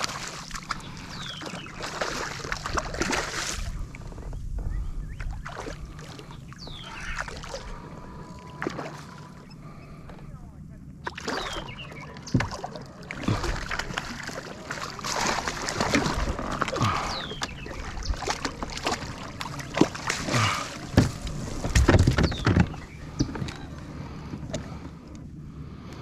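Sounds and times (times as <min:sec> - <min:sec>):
water splashing and sloshing: 0:00.0 - 0:10.3, 0:10.9 - 0:26.0
knocks against kayak hull: 0:20.9 - 0:23.5.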